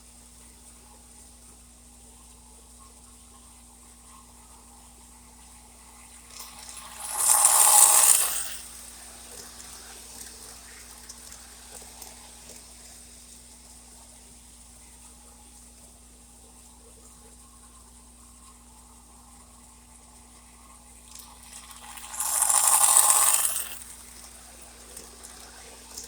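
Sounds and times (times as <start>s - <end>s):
model train running on track: 5.6s - 13.3s, 21.0s - 26.0s.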